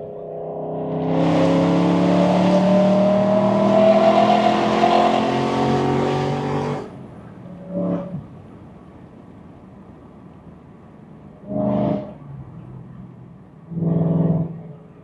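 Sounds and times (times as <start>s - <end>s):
car engine accelerating: 0.0s - 7.1s, 13.7s - 15.0s.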